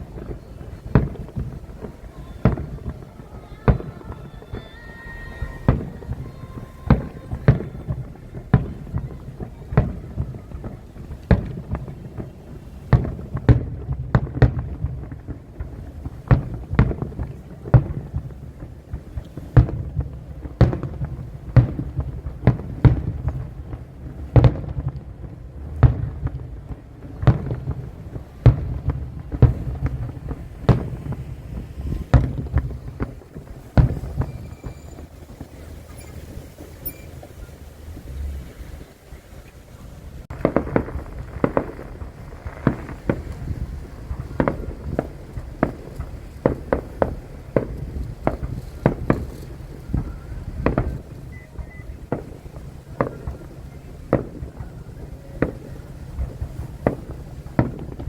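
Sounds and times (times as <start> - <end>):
fireworks bangs: 0.0 - 58.0
low rumble of echoes: 37.2 - 51.3.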